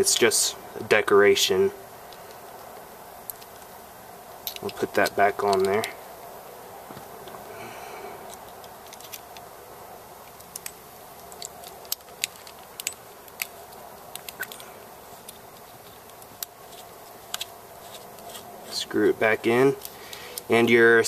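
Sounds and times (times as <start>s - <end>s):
faint hum: 0.0s - 21.0s
plastic adapter parts clicking: 4.5s - 5.9s, 10.3s - 18.4s.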